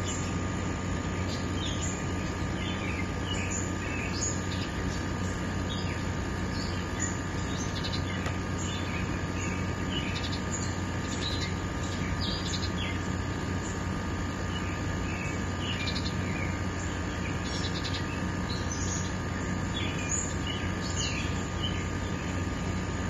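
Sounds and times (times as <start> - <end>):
low steady hum: 0.0 - 23.0
small birds chirping: 0.0 - 23.0.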